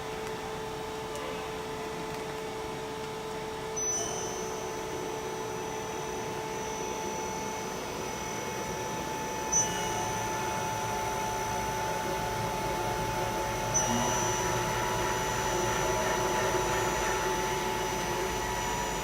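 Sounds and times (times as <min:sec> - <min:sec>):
machine tool humming: 0:05.6 - 0:19.0.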